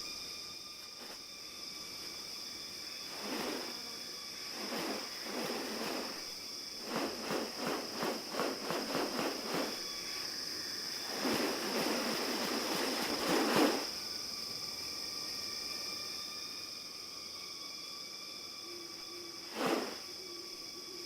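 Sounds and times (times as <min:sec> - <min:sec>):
insects droning: 0:00.0 - 0:21.0
noisy swishes: 0:03.1 - 0:03.8, 0:04.5 - 0:09.8, 0:11.0 - 0:13.9, 0:19.5 - 0:20.0.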